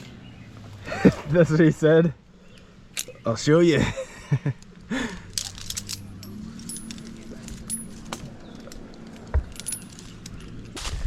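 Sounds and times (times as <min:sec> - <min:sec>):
light metallic clinks and knocks: 0:04.5 - 0:10.9.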